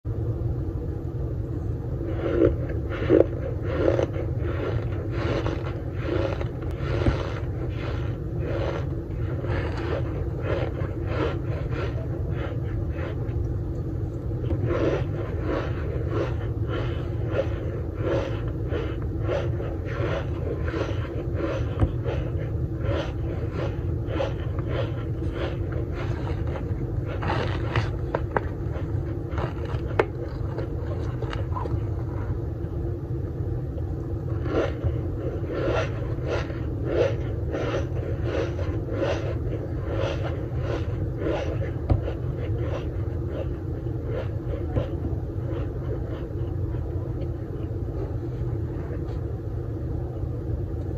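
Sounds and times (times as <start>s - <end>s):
low rumble: 0.0s - 50.9s
crunchy chewing: 2.1s - 32.3s.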